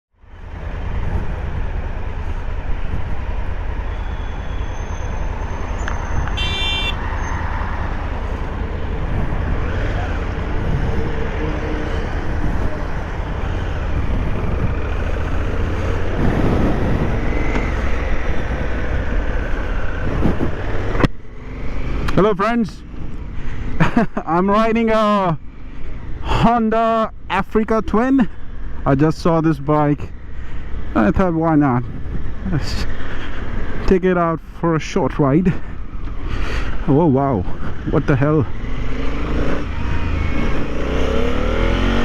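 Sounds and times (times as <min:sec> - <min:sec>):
road traffic noise: 0:00.1 - 0:42.0
motorcycle engine rumbling: 0:00.5 - 0:25.2.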